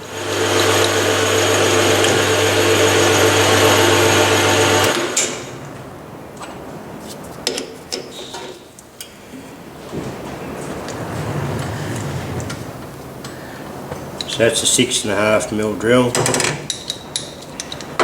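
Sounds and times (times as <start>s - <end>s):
metal lathe motor hum: 0.0s - 5.5s.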